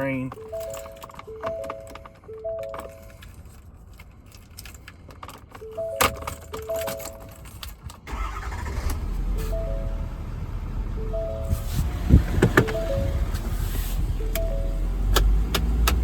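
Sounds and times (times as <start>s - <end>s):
warning chime dinging: 0.0s - 3.1s, 9.2s - 15.1s
keys jingling and clicks: 0.2s - 8.1s
diesel engine starting and rumbling: 8.0s - 16.0s.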